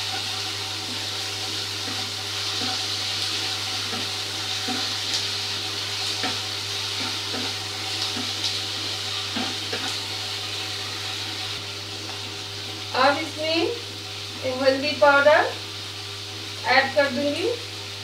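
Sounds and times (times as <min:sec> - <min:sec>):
vegetables sizzling in a wok: 0:00.0 - 0:18.0
spatula scraping and knocking pan: 0:01.8 - 0:05.3, 0:06.0 - 0:10.1.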